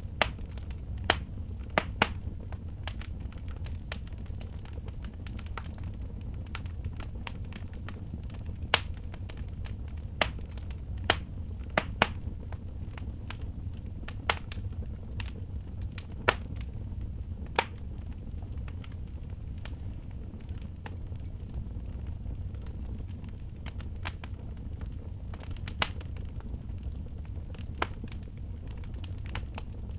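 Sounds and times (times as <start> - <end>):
wood fire crackling and popping: 0.0 - 29.9.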